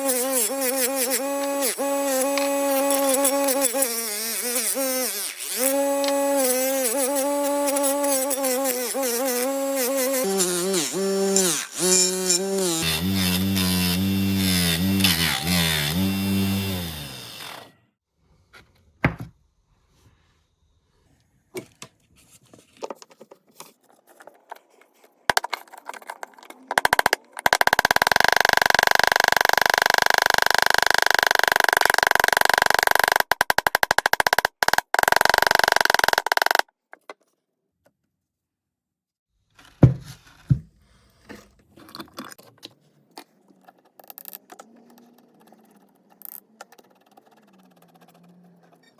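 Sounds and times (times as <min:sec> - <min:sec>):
small power tool running: 0:00.0 - 0:17.8, 0:26.8 - 0:36.6.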